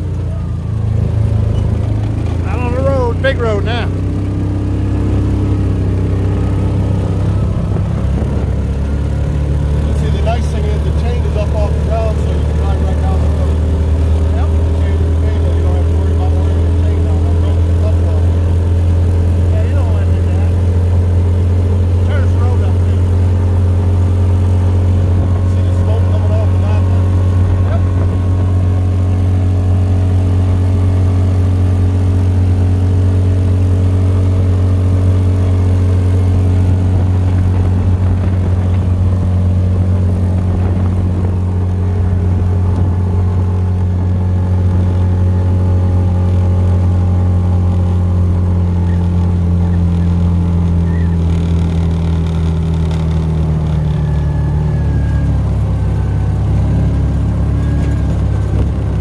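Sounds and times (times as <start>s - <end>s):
utility vehicle engine running: 0.0s - 59.0s.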